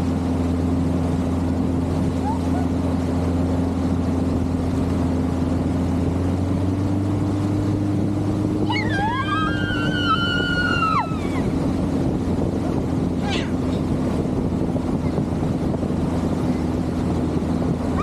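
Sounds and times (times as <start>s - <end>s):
motorboat engine running: 0.0s - 18.0s
rushing water: 0.0s - 18.0s
wind noise: 5.6s - 18.0s
long high-pitched yell: 8.7s - 11.2s.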